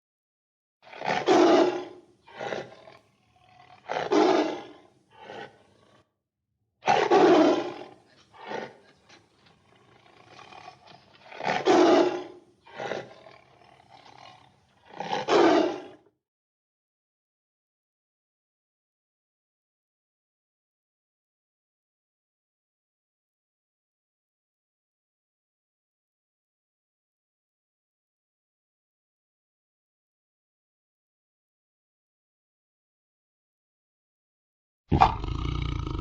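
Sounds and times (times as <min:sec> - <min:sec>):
tiger roaring: 0:00.8 - 0:06.1, 0:06.8 - 0:16.1, 0:34.9 - 0:36.0.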